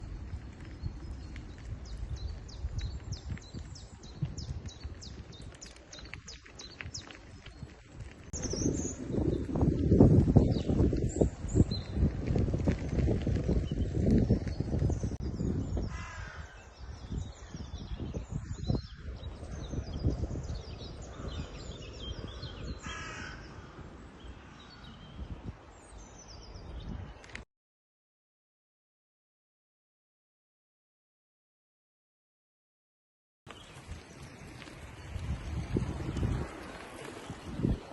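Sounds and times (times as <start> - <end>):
songbird singing: 0.0 - 12.2, 13.5 - 27.4
crow cawing: 15.9 - 16.6, 22.8 - 23.9.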